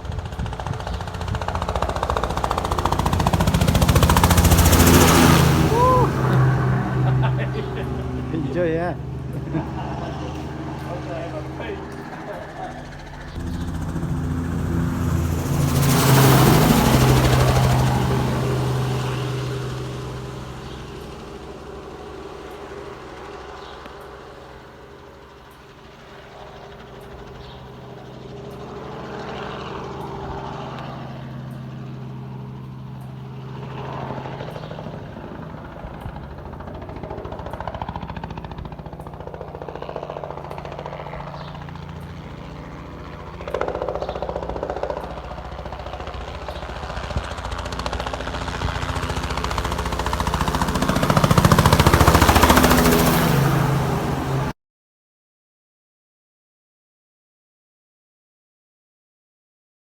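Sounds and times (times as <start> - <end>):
engine running steadily: 0.0 - 22.9.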